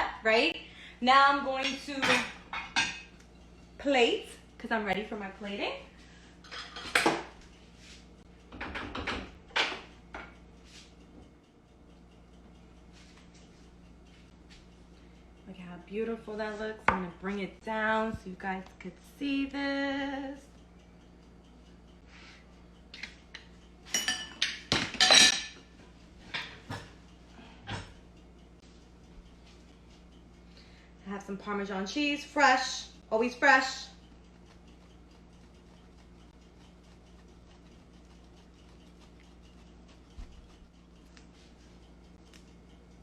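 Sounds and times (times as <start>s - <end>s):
dishes and utensils clattering: 1.6s - 3.6s, 6.4s - 7.4s, 8.5s - 10.3s, 23.0s - 28.0s.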